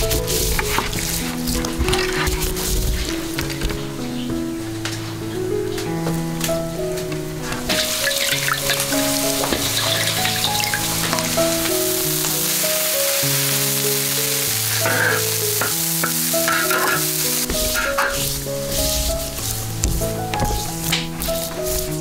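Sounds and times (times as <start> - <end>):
slow melodic background music: 0.0 - 22.0
food sizzling in wok: 7.7 - 22.0.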